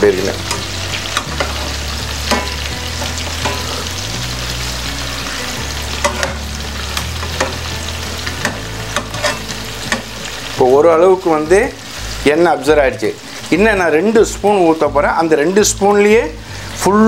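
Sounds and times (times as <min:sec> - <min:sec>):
chicken sizzling in a frying pan: 0:00.0 - 0:17.0
metal spoon scraping a pan: 0:00.4 - 0:04.1, 0:05.2 - 0:10.4.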